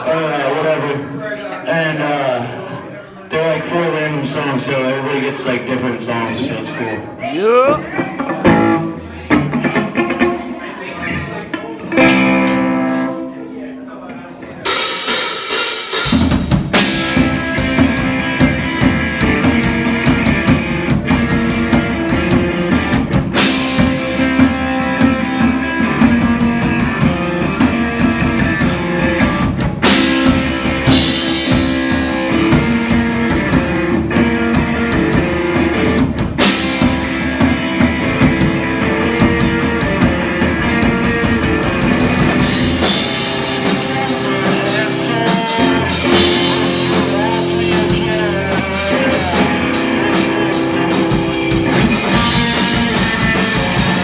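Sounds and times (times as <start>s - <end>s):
guitar: 0.0s - 54.0s
bass: 3.3s - 13.3s, 16.0s - 54.0s
drum kit: 11.9s - 13.2s, 14.6s - 54.0s.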